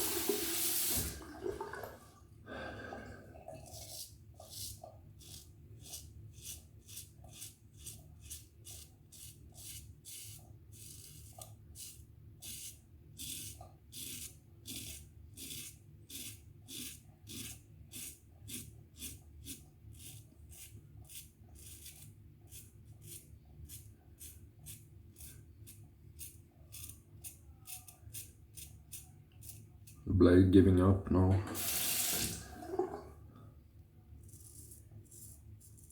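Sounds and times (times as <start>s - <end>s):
razor scraping stubble: 3.7s - 30.0s, 34.2s - 35.9s.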